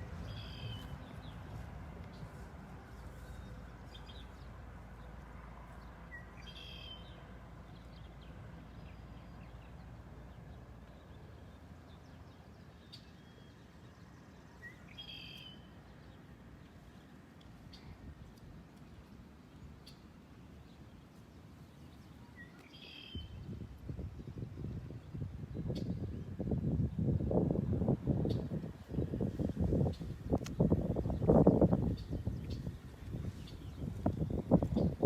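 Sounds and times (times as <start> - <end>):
bird calling: 0.0 - 1.0, 14.6 - 15.7, 22.2 - 23.4.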